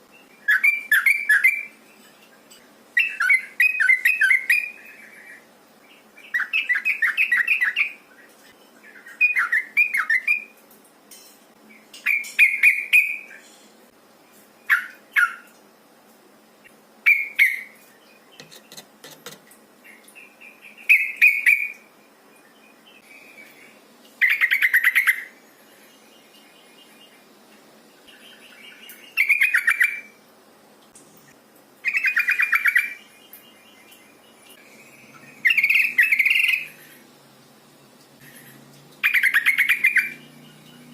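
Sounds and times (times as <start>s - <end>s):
bulbul bubbly chattering calls: 39.0s - 40.8s.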